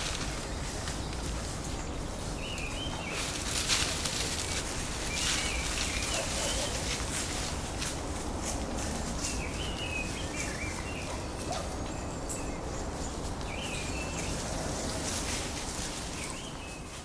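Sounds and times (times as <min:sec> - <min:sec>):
songbirds warbling: 0:05.0 - 0:07.2, 0:09.1 - 0:17.0.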